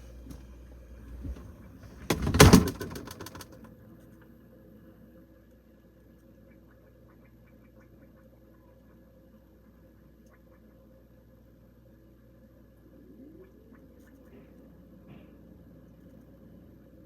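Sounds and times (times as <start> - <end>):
faint fridge hum: 0.0 - 17.0
refrigerator door shutting: 1.2 - 3.6
knocks and rattles: 1.2 - 3.7.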